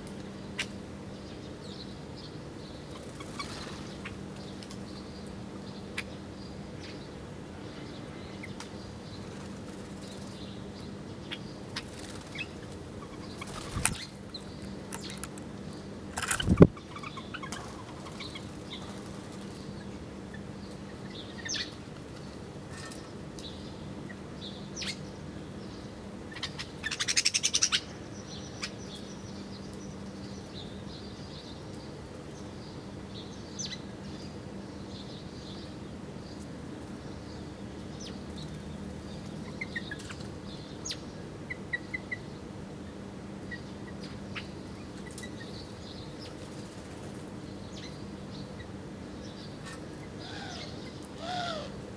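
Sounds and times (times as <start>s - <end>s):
small birds chirping: 0.5s - 42.5s, 43.4s - 51.9s
rapid wingbeats: 13.2s - 15.4s, 16.2s - 16.7s.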